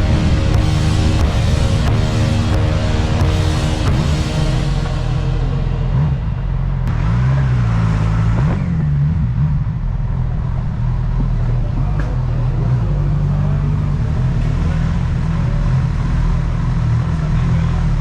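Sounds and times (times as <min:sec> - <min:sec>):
wind rumble: 0:00.0 - 0:12.7
motorcycle engine revving: 0:00.0 - 0:18.0
road noise: 0:00.0 - 0:18.0.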